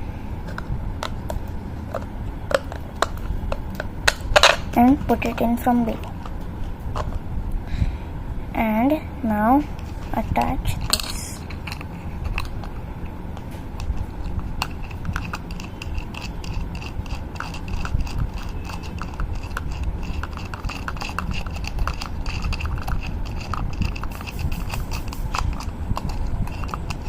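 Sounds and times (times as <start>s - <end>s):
low background rumble: 0.0s - 27.0s
hands working nut and bolt: 0.5s - 7.2s, 9.8s - 12.8s, 13.4s - 27.0s.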